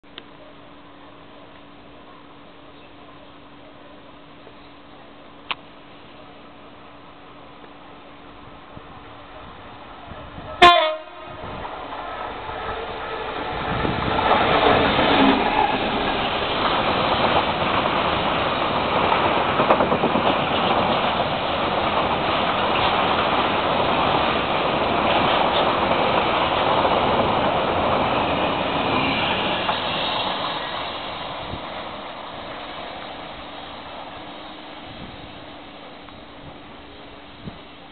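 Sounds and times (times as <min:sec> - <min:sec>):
diesel locomotive engine: 0:00.0 - 0:37.9
locomotive horn blast: 0:10.6 - 0:11.5.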